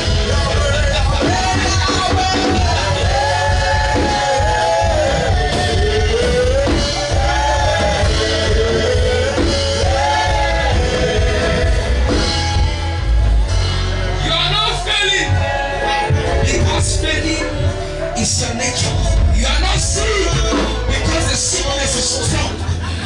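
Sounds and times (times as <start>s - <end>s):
heavy bass: 0.0s - 23.0s
wordless singing: 0.0s - 23.0s
worship band music: 0.0s - 23.0s.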